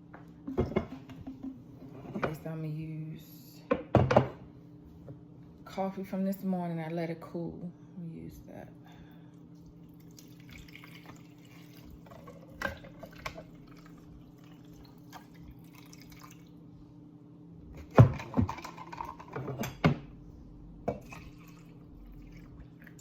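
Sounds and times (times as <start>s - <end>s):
coffee pouring over ice: 9.6s - 16.5s, 21.0s - 23.0s.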